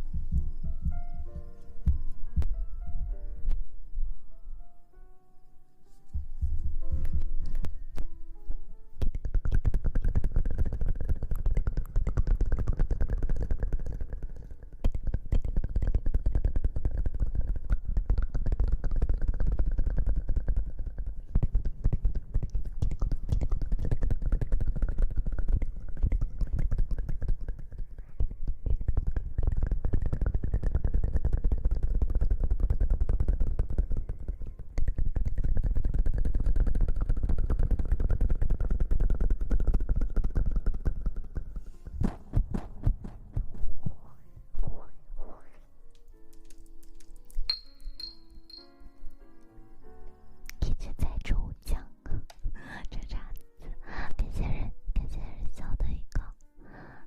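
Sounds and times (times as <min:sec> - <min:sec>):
low rumble: 0:41.7 - 0:46.1.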